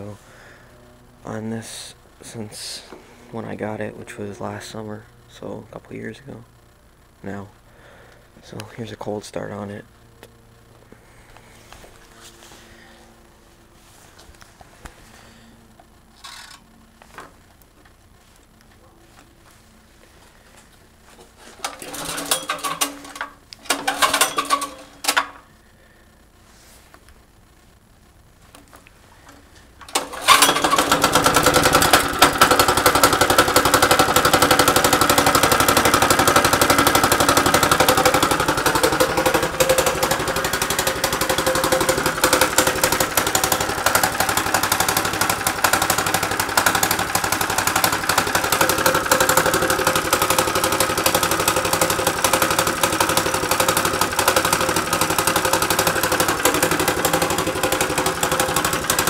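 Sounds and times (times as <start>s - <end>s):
small engine starting and running: 16.2s - 16.6s, 21.5s - 25.5s, 29.8s - 59.0s.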